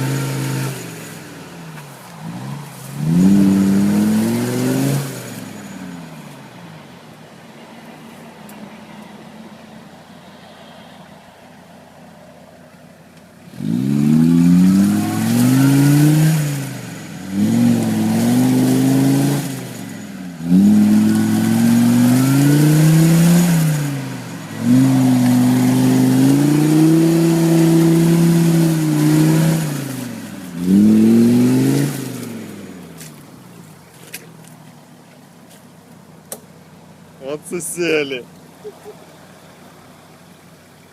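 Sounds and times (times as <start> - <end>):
diesel engine revving: 0.0 - 6.3, 13.4 - 34.6.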